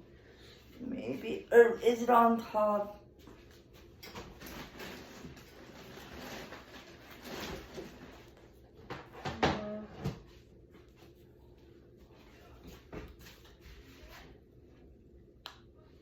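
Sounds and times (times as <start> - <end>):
rustling of things moved: 3.2 - 14.4.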